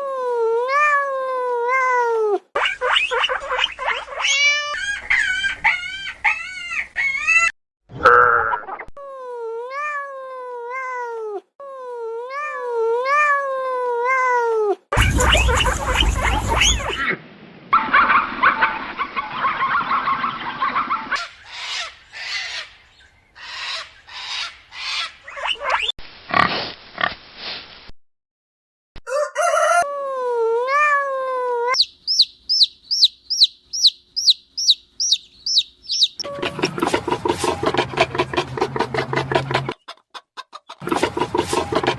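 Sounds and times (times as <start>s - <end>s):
chicks peeping: 15.0s - 17.0s, 31.7s - 38.6s
farm animal calls: 15.0s - 17.1s, 31.7s - 41.9s.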